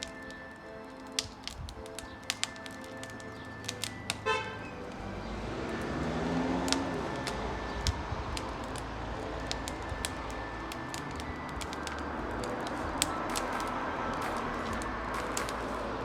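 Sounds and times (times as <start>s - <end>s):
bonfire crackling: 0.0s - 16.0s
vehicle passing: 3.4s - 16.0s.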